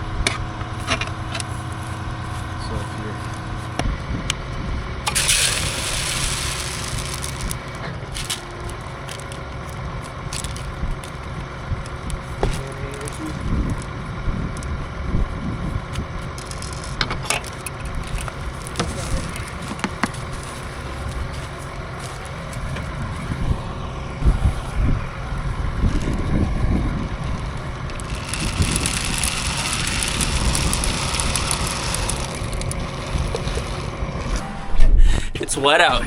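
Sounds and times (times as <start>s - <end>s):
vehicle engine running: 0.0s - 34.4s
hissing noise: 5.1s - 8.3s.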